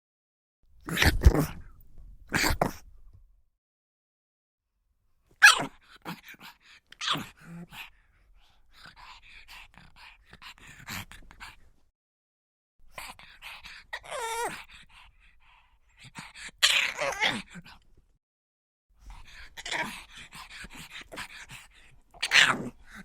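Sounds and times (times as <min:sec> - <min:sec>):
dog yelping: 0:05.4 - 0:05.7.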